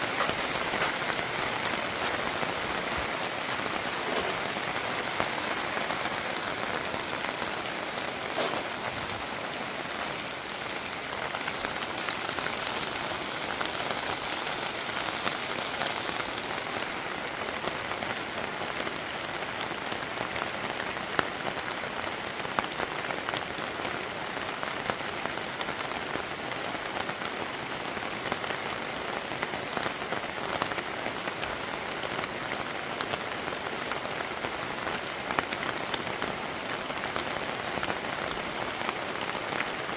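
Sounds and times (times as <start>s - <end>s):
raindrops ticking: 0.0s - 16.9s
steady rain hiss: 0.0s - 39.9s.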